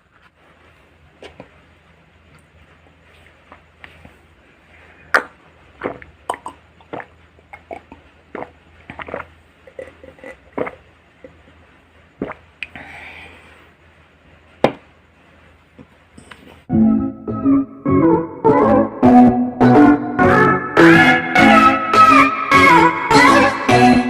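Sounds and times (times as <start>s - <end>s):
wet mouth clicks: 5.1s - 11.4s, 12.2s - 12.8s
crunchy vegetables being chewed: 5.2s - 10.8s.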